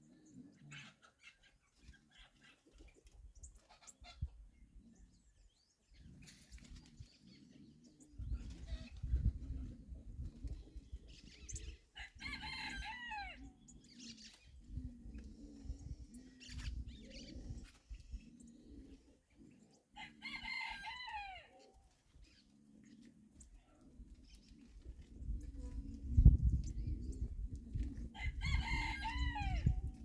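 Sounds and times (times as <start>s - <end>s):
rooster crowing: 12.0s - 13.4s, 28.2s - 29.7s.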